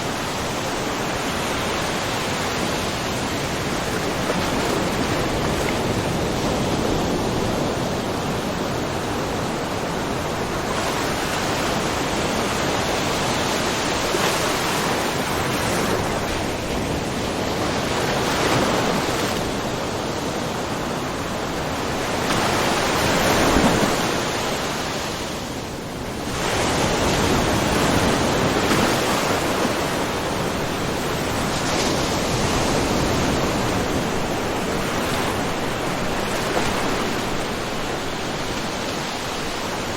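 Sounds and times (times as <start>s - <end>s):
small waves lapping on rocks: 26.2s - 39.9s.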